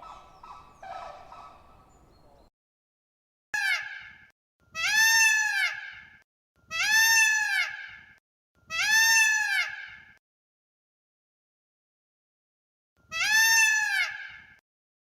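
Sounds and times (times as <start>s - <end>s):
animal calling: 0.0s - 2.5s.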